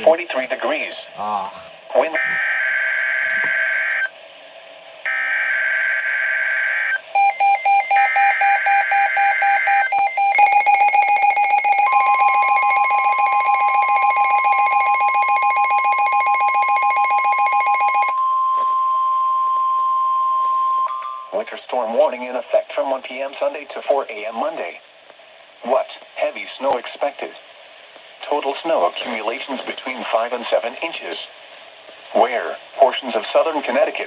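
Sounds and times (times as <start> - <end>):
steady high warning tone: 0.0 - 4.2, 5.0 - 21.4
fast beeping alarm: 2.1 - 4.1, 5.1 - 18.4.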